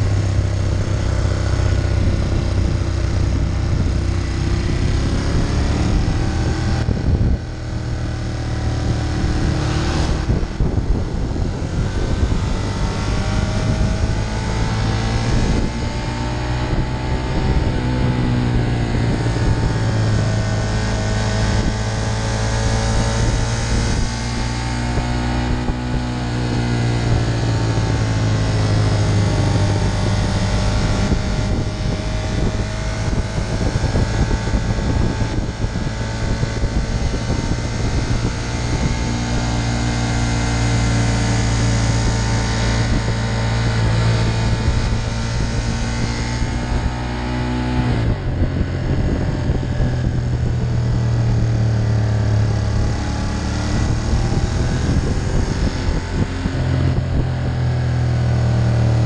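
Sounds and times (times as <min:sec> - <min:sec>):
motorcycle engine running: 0:00.0 - 0:59.0
rushing wind: 0:00.0 - 0:59.0.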